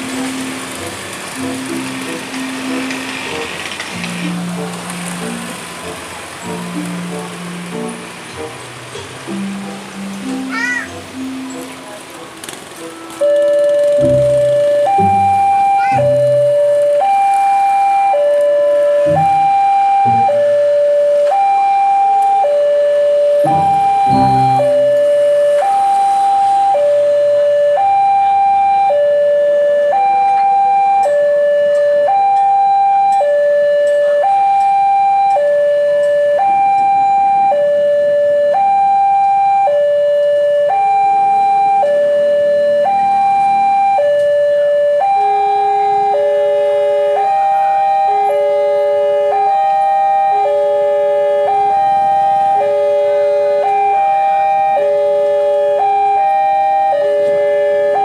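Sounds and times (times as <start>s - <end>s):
two-tone crossing alarm: 0.0s - 58.0s
second lower alarm: 13.2s - 58.0s.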